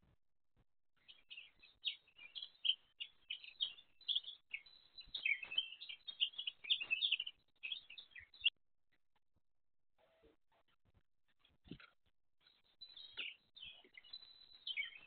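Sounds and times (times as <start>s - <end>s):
songbird chirping and twittering: 1.0s - 8.6s, 11.4s - 15.0s.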